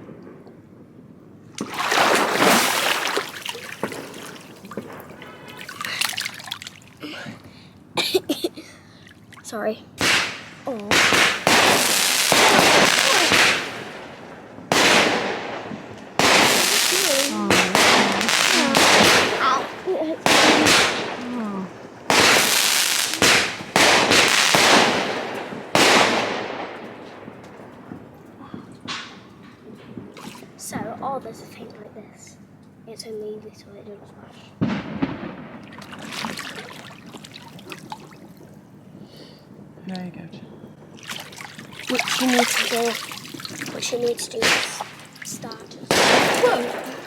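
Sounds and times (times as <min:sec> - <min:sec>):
water splashing and sloshing: 0:01.4 - 0:32.0, 0:34.7 - 0:39.0, 0:40.6 - 0:47.0
fireworks bangs: 0:01.5 - 0:05.8, 0:10.0 - 0:31.1, 0:34.6 - 0:39.7, 0:40.5 - 0:47.0
water dripping: 0:01.6 - 0:07.6, 0:16.0 - 0:20.1, 0:35.6 - 0:38.7, 0:41.0 - 0:47.0.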